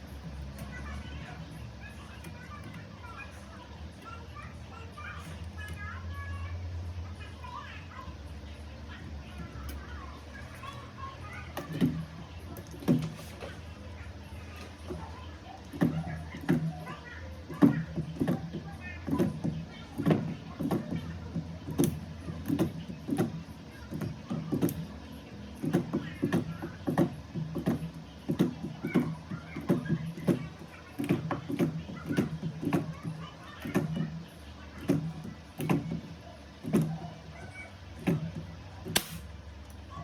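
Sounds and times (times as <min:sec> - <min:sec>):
sharp clicks: 0:38.9 - 0:39.8.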